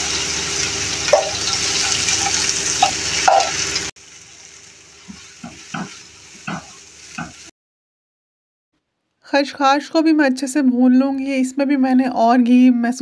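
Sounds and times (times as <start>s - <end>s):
seeds sizzling in a pan: 0.0s - 7.5s.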